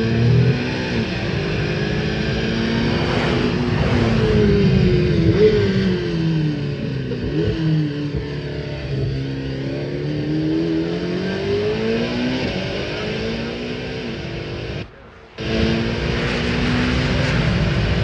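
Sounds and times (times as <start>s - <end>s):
sports car engine revving: 0.0s - 18.0s.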